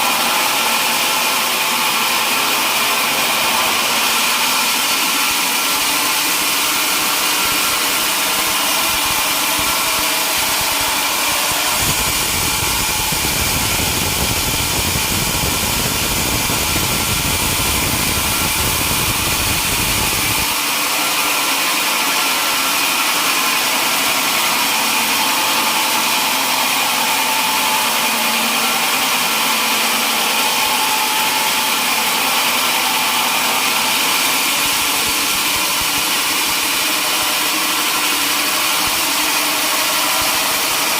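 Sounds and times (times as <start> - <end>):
sawmill machinery running: 0.0 - 40.9
deep rumble: 10.7 - 20.5.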